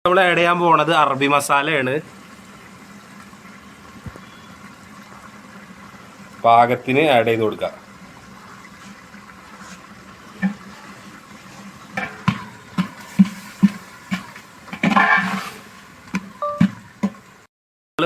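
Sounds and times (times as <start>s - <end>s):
sauce bubbling in a pot: 0.8s - 17.5s.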